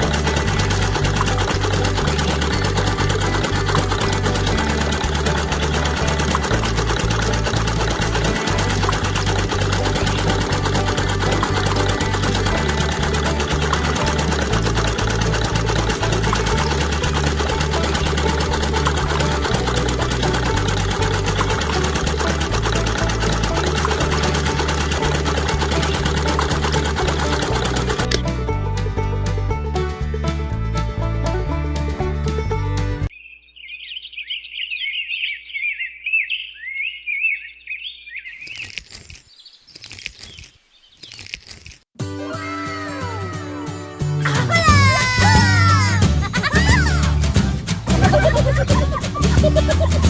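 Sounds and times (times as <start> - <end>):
toy electric motor rattling: 0.0 - 28.3, 38.4 - 41.9, 44.5 - 50.0
birds chirping: 33.1 - 41.3.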